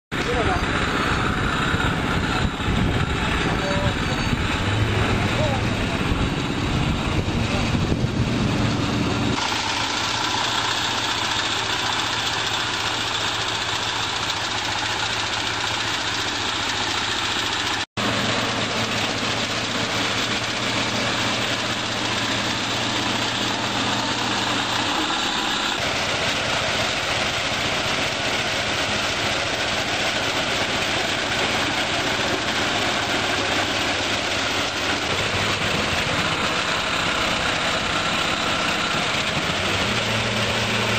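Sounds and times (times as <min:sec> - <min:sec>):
harvester engine running: 0:00.1 - 0:40.9.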